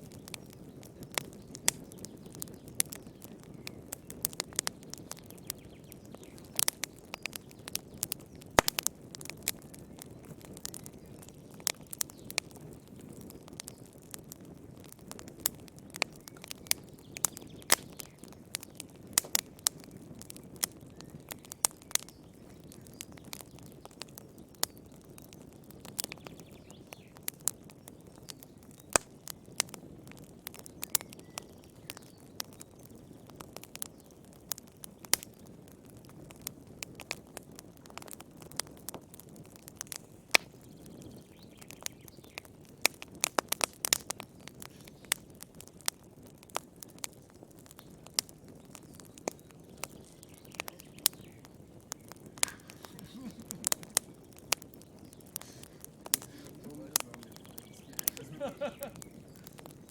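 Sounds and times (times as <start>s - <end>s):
wood fire crackling and popping: 0.0s - 59.9s
low steady hiss: 50.0s - 59.9s.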